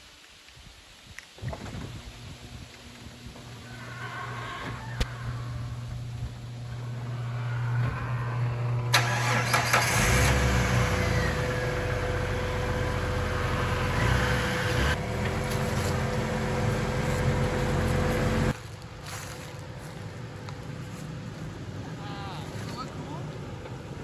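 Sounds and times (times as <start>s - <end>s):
car engine starting and idling: 3.8s - 18.6s.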